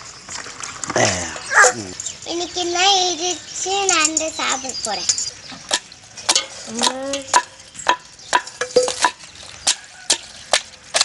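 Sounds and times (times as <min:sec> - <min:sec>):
stone pounding crabs: 0:05.7 - 0:11.0.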